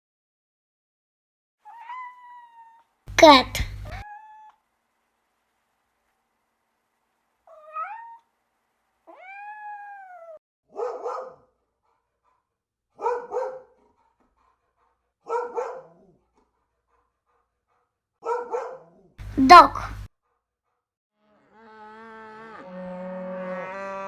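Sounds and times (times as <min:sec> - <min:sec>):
cat meowing: 0:01.6 - 0:02.9, 0:03.8 - 0:04.6, 0:07.5 - 0:08.2, 0:09.1 - 0:10.4.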